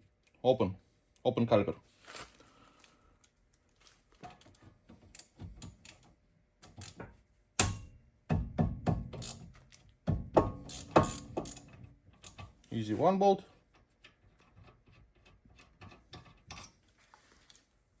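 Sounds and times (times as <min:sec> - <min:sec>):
metallic knocks and clanks: 0:06.8 - 0:12.6
hand tool ratcheting: 0:09.1 - 0:09.5, 0:10.4 - 0:12.6.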